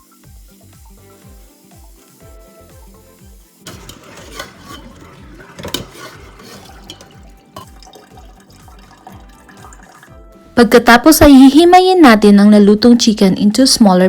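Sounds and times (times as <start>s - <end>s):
background music: 0.0s - 14.0s
tap water pouring: 3.7s - 10.4s.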